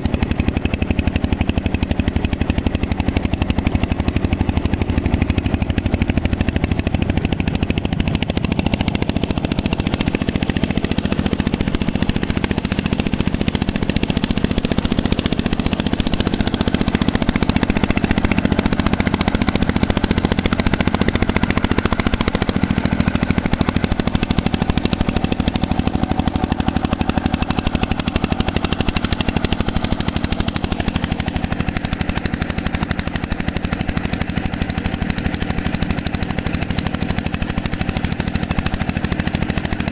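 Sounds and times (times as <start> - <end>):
boat engine chugging: 0.0 - 39.9.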